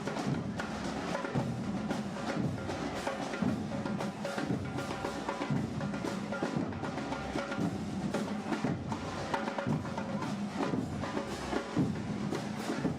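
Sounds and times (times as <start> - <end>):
marching band drums: 0.0 - 12.9.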